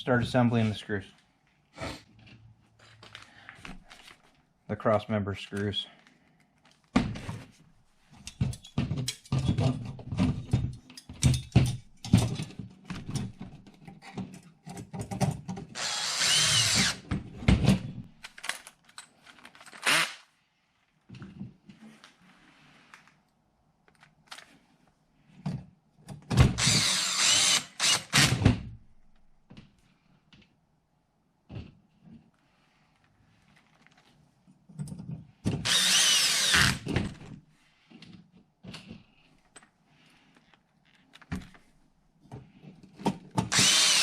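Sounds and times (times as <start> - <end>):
small parts clicking and knocking: 8.2 - 17.0, 18.2 - 20.0
cordless power driver spinning: 15.8 - 17.0, 26.6 - 28.4, 35.6 - 36.9, 43.5 - 44.0.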